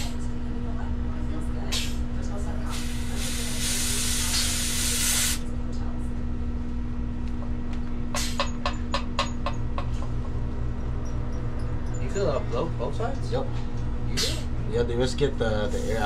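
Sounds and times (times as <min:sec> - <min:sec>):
steady low hum: 0:00.0 - 0:16.0
refrigerant hissing from hose: 0:02.7 - 0:05.4.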